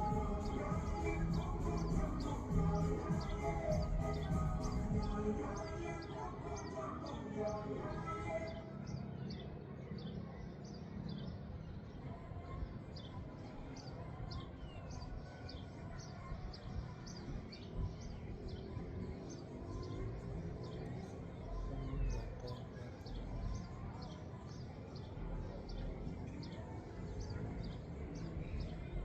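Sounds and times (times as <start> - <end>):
wind rumbling on microphone: 11.5 - 24.4.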